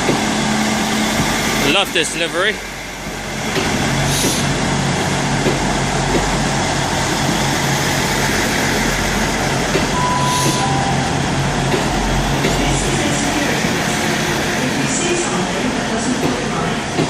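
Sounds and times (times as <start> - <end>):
train diesel engines humming: 0.0 - 17.0
two-note beep: 10.0 - 11.2.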